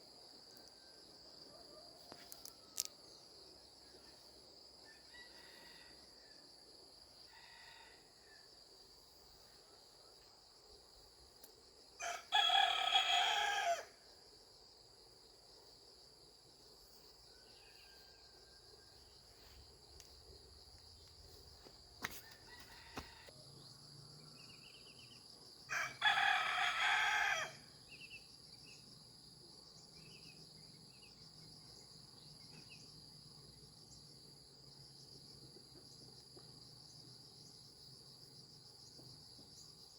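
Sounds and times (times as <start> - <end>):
high insect drone: 0.0 - 39.9
rooster crowing: 4.9 - 6.3, 7.3 - 8.4, 12.0 - 14.0, 22.1 - 23.4, 25.7 - 27.7.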